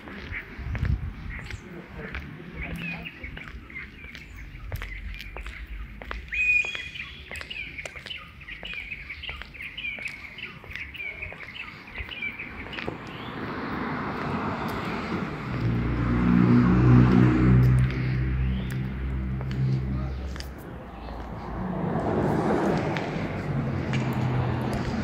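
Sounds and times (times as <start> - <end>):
small bird chirping: 2.7 - 13.4
low engine hum: 12.6 - 25.0
tyres hissing on wet street: 13.3 - 25.0.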